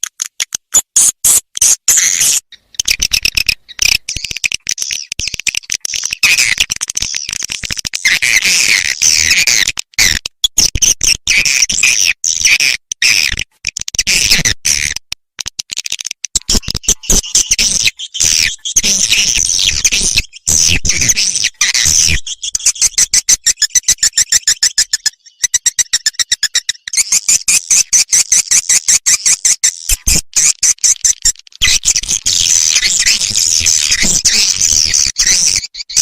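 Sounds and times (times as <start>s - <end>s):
swiftlet twittering chirps: 16.6s - 27.9s, 31.6s - 36.0s.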